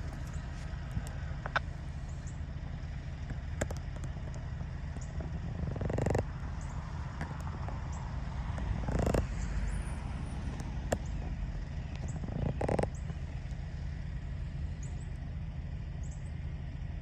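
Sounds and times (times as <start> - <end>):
diesel locomotives rumbling: 0.0 - 17.0
sharp clicks: 3.2 - 9.6.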